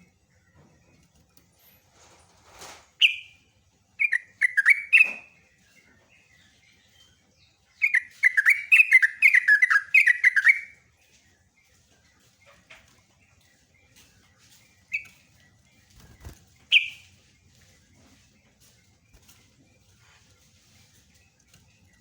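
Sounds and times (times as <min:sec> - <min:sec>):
bulbul singing: 0:03.0 - 0:10.8, 0:11.6 - 0:20.1.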